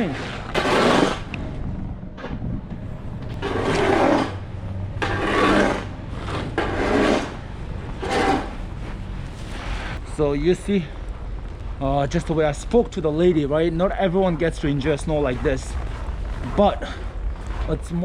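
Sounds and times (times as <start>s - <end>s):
snow shovel scraping pavement: 0.0s - 1.3s, 3.3s - 4.4s, 5.0s - 10.0s.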